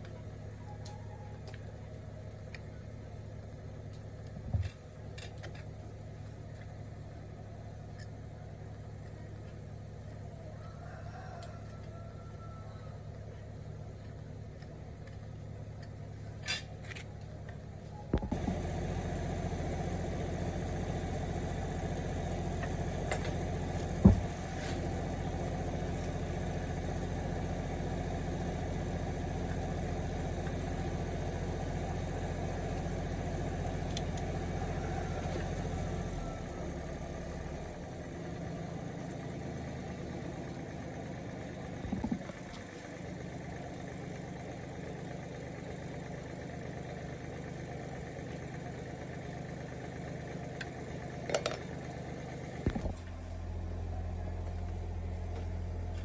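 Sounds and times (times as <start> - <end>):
gasoline engine running: 0.0 - 56.0.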